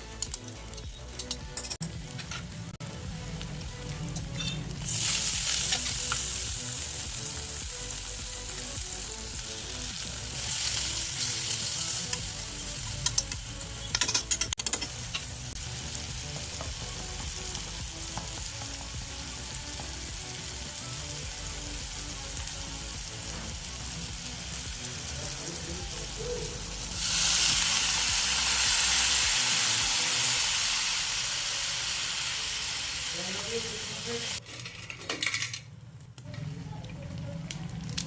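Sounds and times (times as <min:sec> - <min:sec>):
vegetables sizzling in hot oil: 0:02.9 - 0:34.4
utensil clicking against pan: 0:12.9 - 0:15.2.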